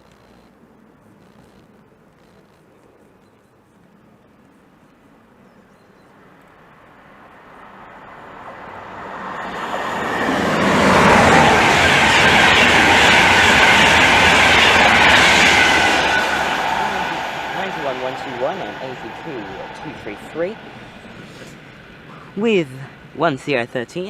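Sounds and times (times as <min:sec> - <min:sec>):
train passing: 0:05.1 - 0:24.0.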